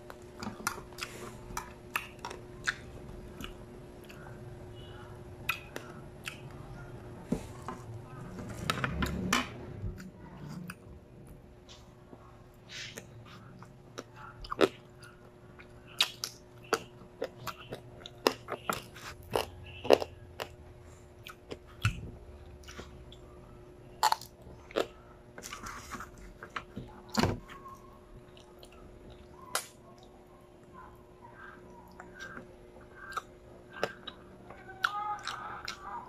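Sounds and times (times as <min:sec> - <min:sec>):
person chewing and crunching: 0:00.0 - 0:04.4, 0:05.5 - 0:06.8, 0:12.8 - 0:23.2, 0:23.9 - 0:26.6, 0:31.3 - 0:36.0
faint hum: 0:00.0 - 0:36.0.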